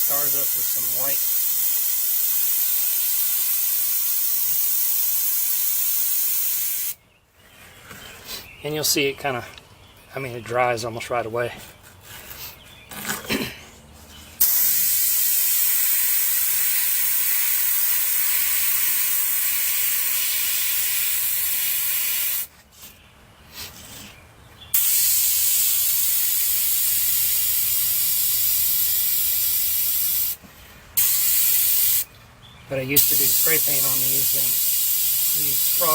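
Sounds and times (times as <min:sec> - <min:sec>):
airbrush hissing: 0:00.0 - 0:07.0, 0:14.4 - 0:22.5, 0:24.8 - 0:30.4, 0:31.0 - 0:32.1, 0:33.0 - 0:35.9.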